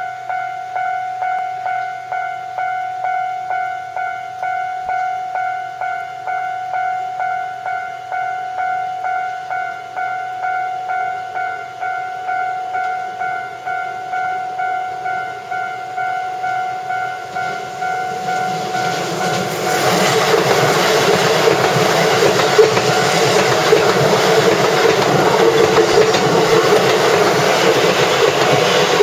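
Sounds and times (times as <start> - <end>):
level crossing bell dinging: 0.0 - 29.0
train wheels clattering on rails: 17.2 - 29.0.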